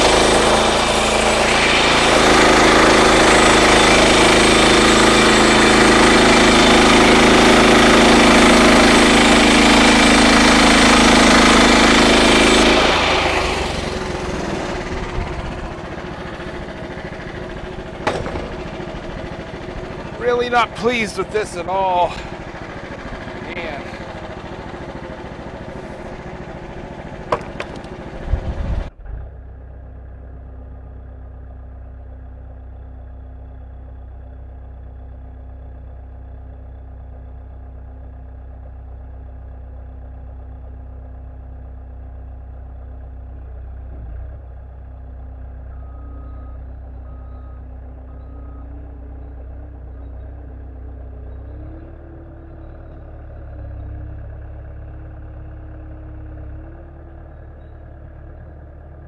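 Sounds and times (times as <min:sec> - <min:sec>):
loud rushing noise: 0:00.0 - 0:04.6
small gasoline engine idling: 0:00.0 - 0:59.0.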